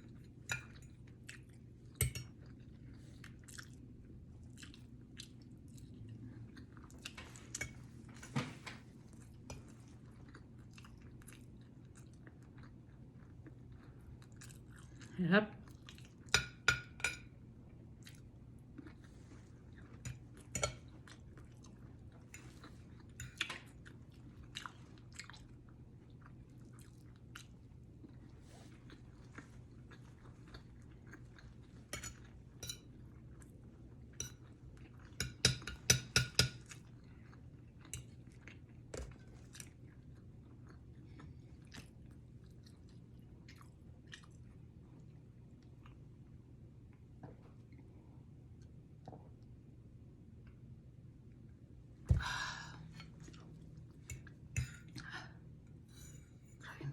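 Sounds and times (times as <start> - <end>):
person chewing and crunching food: 0.0 - 8.0, 8.9 - 16.6, 17.8 - 49.6
low steady hum: 0.0 - 56.9.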